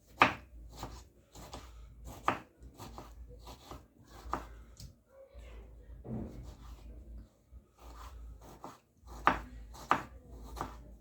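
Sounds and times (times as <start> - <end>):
knife chopping on board: 0.0 - 4.5, 6.1 - 6.9, 7.8 - 10.9.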